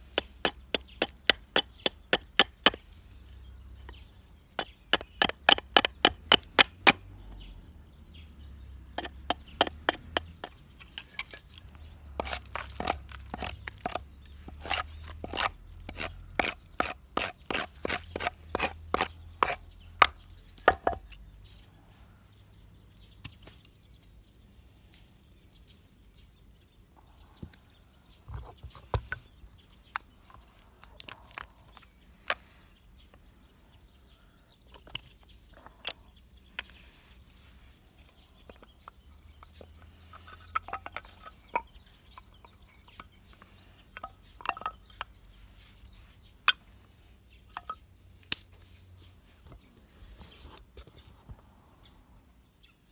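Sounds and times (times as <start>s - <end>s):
tool knocking on wood: 9.0s - 10.6s.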